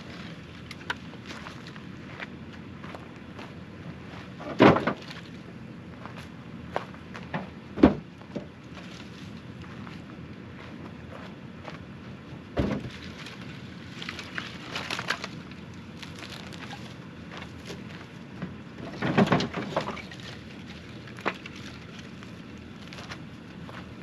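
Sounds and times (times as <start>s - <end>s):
low outdoor background: 0.0s - 24.0s
wood cracking and snapping: 12.6s - 16.9s.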